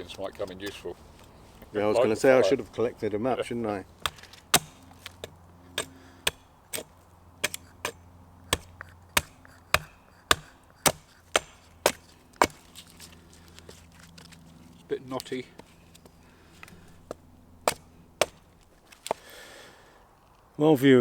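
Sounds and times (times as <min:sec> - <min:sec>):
wood being chopped: 0:04.0 - 0:13.8, 0:15.2 - 0:19.3.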